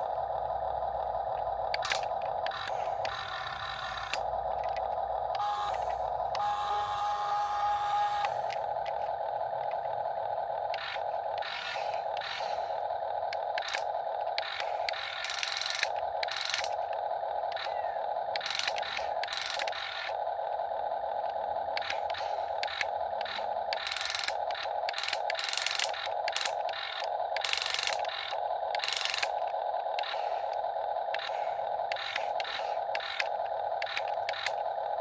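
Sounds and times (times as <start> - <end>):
electric motors whining: 0.0 - 35.0.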